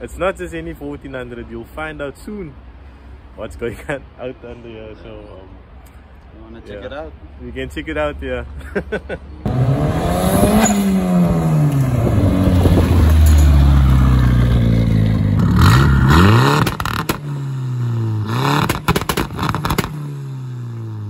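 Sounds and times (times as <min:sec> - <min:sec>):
turbocharged car engine revving: 0:09.5 - 0:21.0
turbo hiss and crackling pops: 0:18.6 - 0:20.0.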